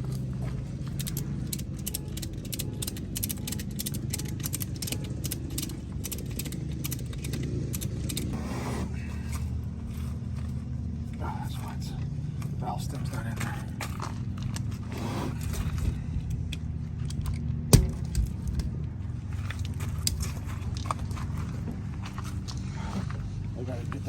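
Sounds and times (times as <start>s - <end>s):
vehicle engine idling: 0.0s - 24.0s
metallic clicks and rattles: 0.1s - 8.4s.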